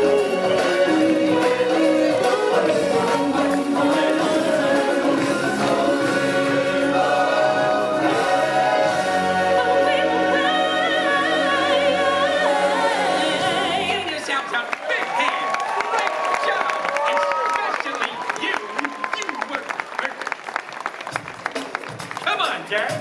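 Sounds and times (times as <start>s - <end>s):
choir singing: 0.0s - 14.1s
loud backing music: 0.0s - 14.3s.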